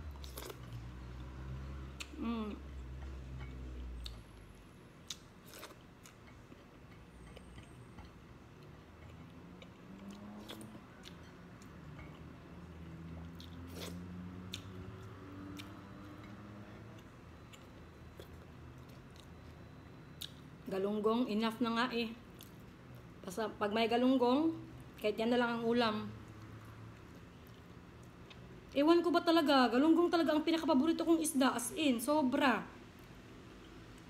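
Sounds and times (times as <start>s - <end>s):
person chewing: 0.0s - 1.3s, 3.1s - 20.5s, 26.9s - 28.8s.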